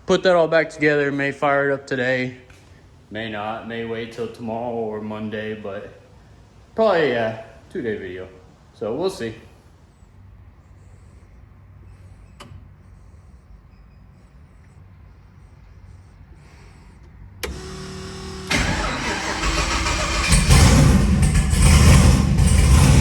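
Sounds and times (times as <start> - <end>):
low steady hum: 2.0 - 20.1
car engine starting and running: 17.4 - 23.0
starter motor whine: 17.4 - 23.0.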